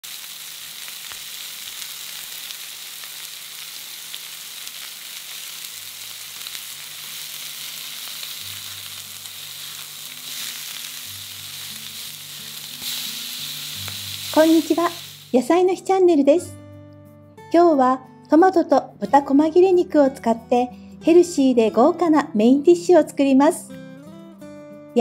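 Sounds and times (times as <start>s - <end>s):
food sizzling in frying pan: 0.0s - 15.8s
spatula turning a patty: 1.1s - 15.4s.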